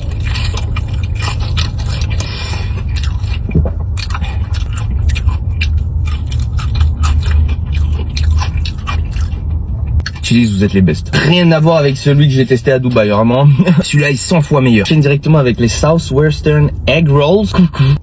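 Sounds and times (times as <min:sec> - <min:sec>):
crunchy chewing: 0:00.0 - 0:10.8
steady low rumble: 0:00.0 - 0:18.0.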